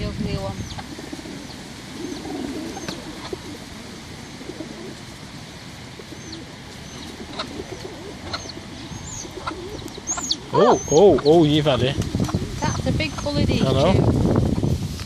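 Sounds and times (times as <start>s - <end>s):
soft low cooing calls: 0.4s - 11.4s
high bird chirps: 8.3s - 11.4s.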